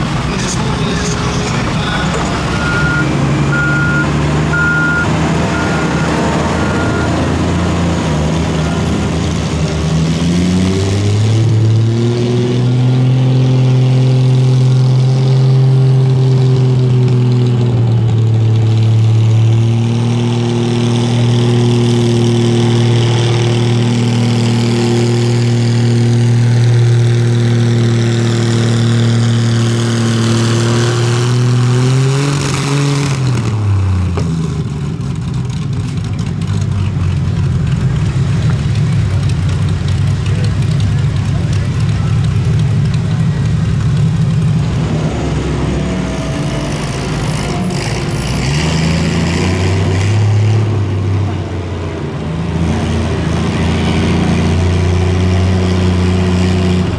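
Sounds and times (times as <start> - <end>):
vehicle engine revving under load: 0.0 - 16.9, 36.6 - 56.9.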